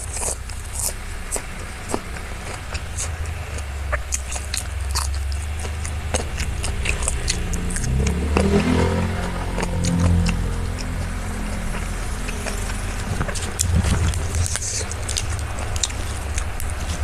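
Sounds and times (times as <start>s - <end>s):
crunchy eating: 0.0s - 17.0s
steady low rumble: 0.0s - 17.0s
low held tones: 6.4s - 16.7s.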